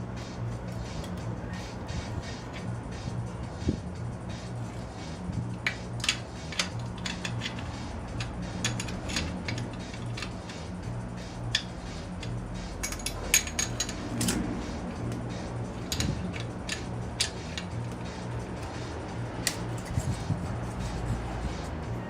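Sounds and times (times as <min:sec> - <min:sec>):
hand tools clinking on metal: 0:05.5 - 0:10.7, 0:11.5 - 0:14.5, 0:15.1 - 0:18.8.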